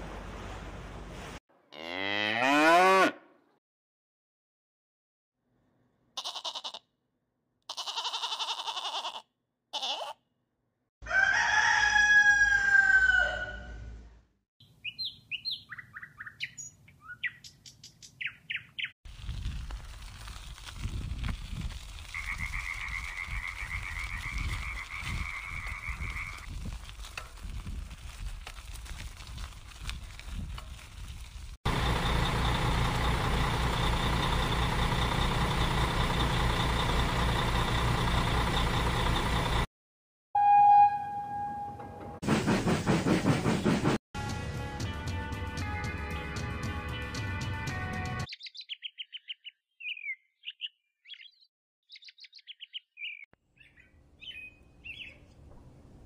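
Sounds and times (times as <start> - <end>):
rooster crowing: 11.0 - 13.9
quick bird chirps: 14.6 - 18.9
bus engine idling: 31.7 - 39.7.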